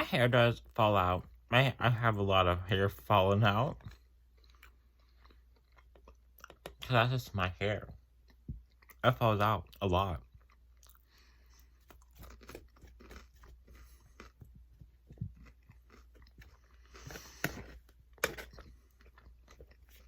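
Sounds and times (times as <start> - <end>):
person chewing food: 3.6 - 6.9, 7.8 - 20.0.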